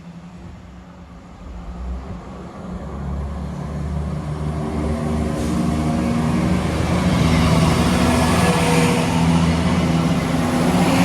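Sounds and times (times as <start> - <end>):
diesel train engine: 0.0 - 11.0
train rail noise: 0.0 - 11.0.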